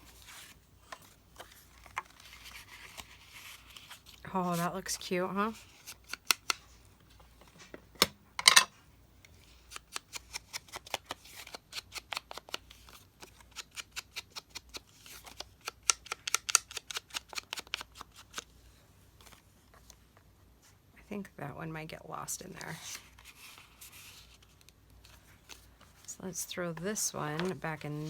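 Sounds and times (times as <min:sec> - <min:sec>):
paper rustling: 0:00.0 - 0:04.7, 0:26.8 - 0:28.0.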